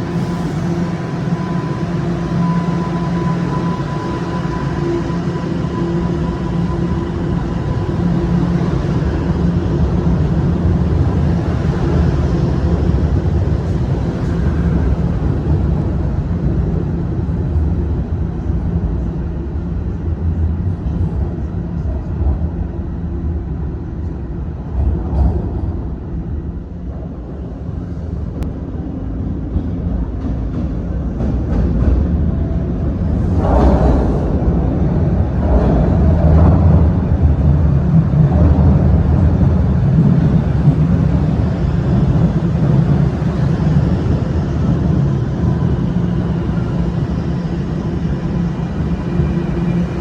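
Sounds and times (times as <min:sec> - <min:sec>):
subway train rumbling: 0:00.0 - 0:50.0
faint steady whine: 0:36.8 - 0:50.0.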